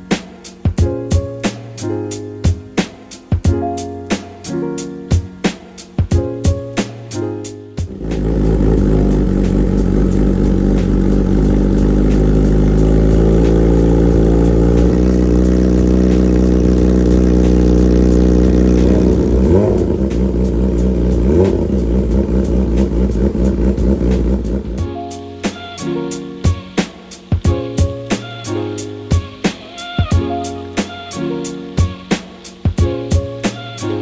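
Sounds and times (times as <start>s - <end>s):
motorcycle engine: 7.9s - 24.8s.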